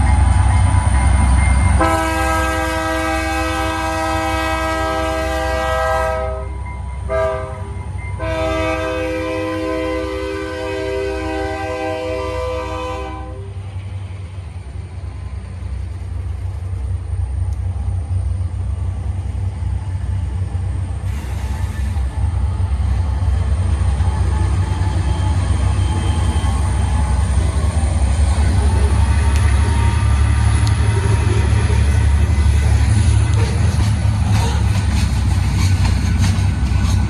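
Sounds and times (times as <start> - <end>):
train rumble: 0.0 - 37.0
train air horn chord: 1.8 - 13.5.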